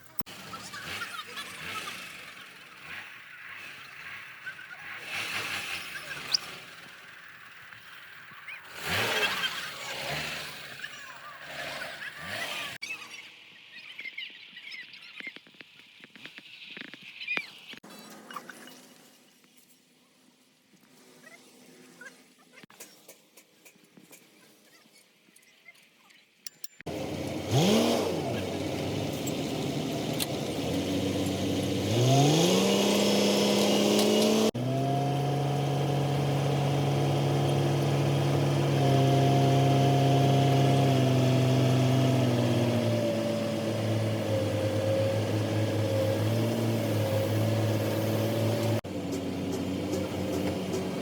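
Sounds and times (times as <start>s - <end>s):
machinery motor humming: 26.9s - 51.0s.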